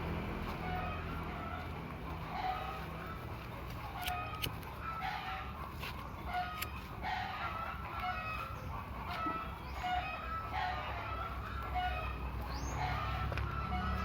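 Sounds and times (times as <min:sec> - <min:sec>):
chickens clucking: 0:00.0 - 0:14.0
sharp clicks: 0:04.0 - 0:04.7.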